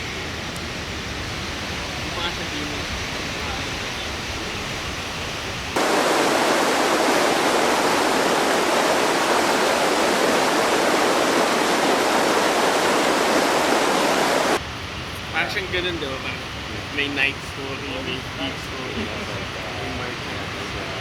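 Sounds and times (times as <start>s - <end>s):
fast river rushing: 5.8s - 14.6s.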